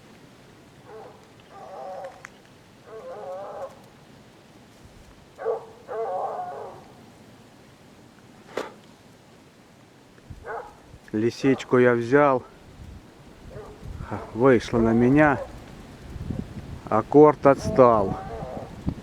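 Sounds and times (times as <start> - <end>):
hound baying: 0.8 - 3.9, 5.4 - 7.0, 10.4 - 10.8, 13.5 - 15.6, 17.6 - 18.8.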